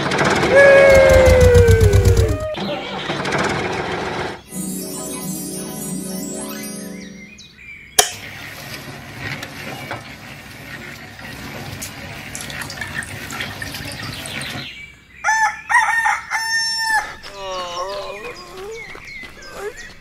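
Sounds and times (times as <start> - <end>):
rooster crowing: 0.5 - 2.6, 15.2 - 17.7
wet concrete splashing: 10.9 - 14.6.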